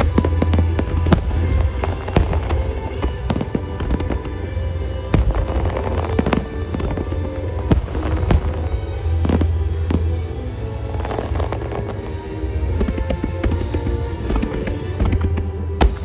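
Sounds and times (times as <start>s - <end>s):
music over loudspeakers: 0.0s - 9.4s
fireworks bursting with cracks and booms: 0.0s - 16.0s.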